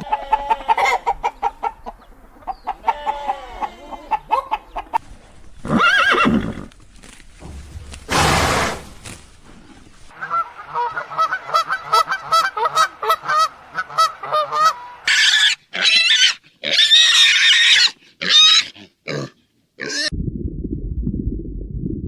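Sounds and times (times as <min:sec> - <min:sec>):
pigs squealing: 0:14.2 - 0:20.1.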